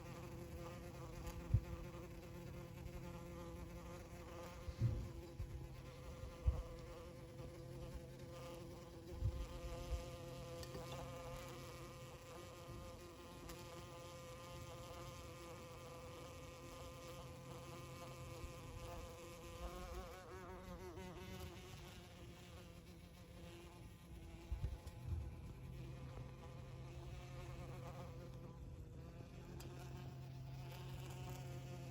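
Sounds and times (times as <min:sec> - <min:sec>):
bee buzzing in flight: 0:00.0 - 0:31.9
brief low thumps: 0:04.7 - 0:05.3.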